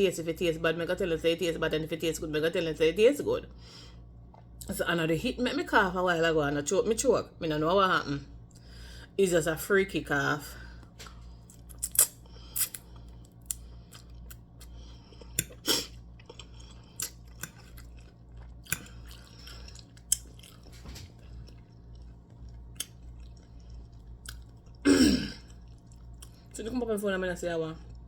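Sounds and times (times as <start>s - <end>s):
person chewing food: 10.8s - 26.6s
lip smacks: 11.0s - 17.8s.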